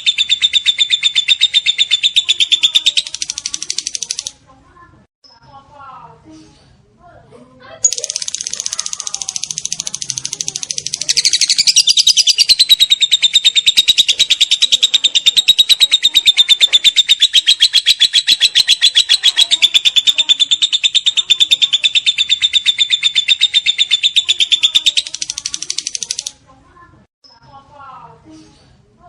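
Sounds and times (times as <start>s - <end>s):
bird rattling chatter call: 0.0s - 4.3s, 7.8s - 26.3s.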